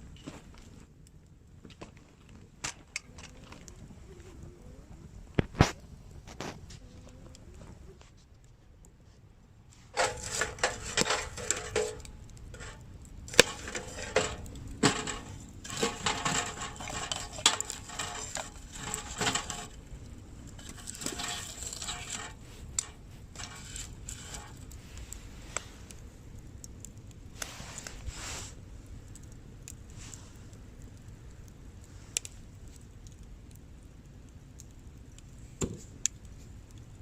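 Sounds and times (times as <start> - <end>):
small hard objects clinking: 10.0 - 24.6.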